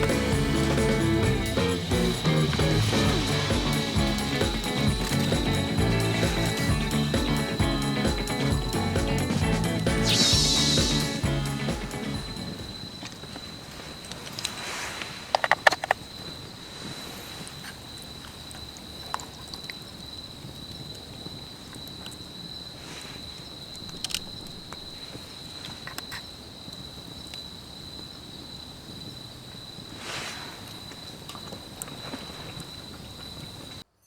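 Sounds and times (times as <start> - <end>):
insect buzzing: 0.0 - 13.1.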